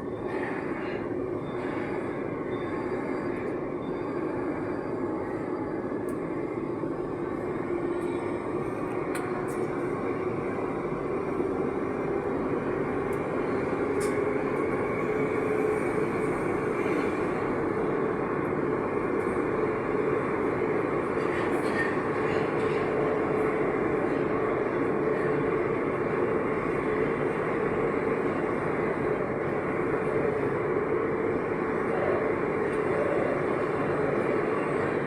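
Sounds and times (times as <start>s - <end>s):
metro train rumble: 0.0s - 35.0s
train hum rising in pitch: 0.0s - 35.0s.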